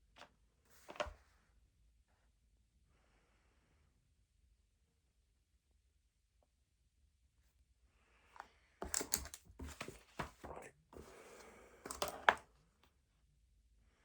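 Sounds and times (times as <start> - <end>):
paper rustling: 8.8 - 12.4.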